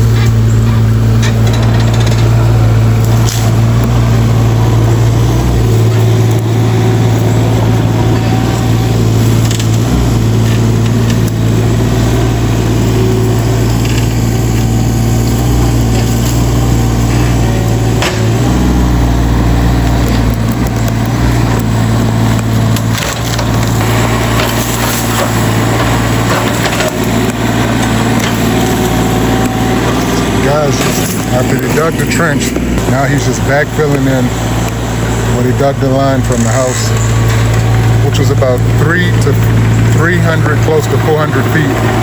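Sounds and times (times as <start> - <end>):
excavator diesel engine: 0.0 - 42.0
bucket crunching and scraping soil: 20.2 - 42.0.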